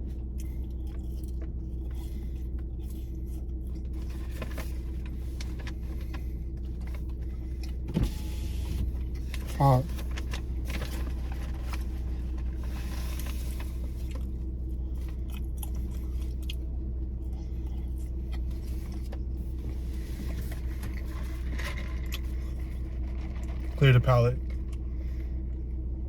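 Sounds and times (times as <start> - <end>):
low rumble: 0.0 - 26.0
person eating: 14.0 - 19.0.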